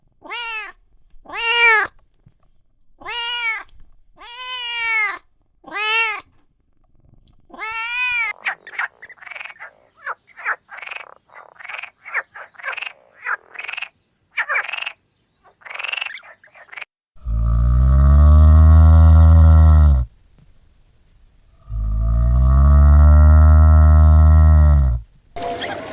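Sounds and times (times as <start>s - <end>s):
cat meowing: 0.2s - 1.9s, 3.0s - 6.2s, 7.5s - 8.3s.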